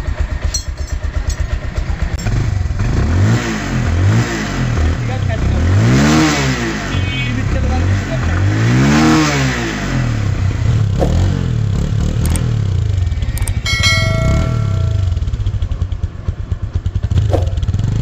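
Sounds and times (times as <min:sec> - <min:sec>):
motorcycle engine idling: 0:00.0 - 0:03.0, 0:11.4 - 0:18.0
metallic ding: 0:13.4 - 0:15.8.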